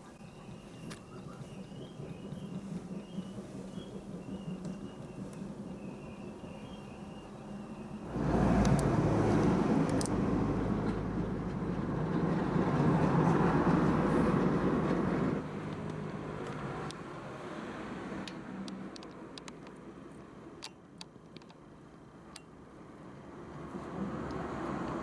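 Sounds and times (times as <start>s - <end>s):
vehicle engine rumbling: 0.0s - 19.7s.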